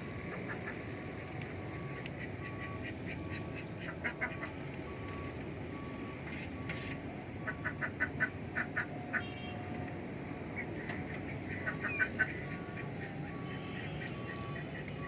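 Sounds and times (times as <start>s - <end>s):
ducks quacking: 1.7s - 4.5s, 7.4s - 9.3s, 10.6s - 14.8s.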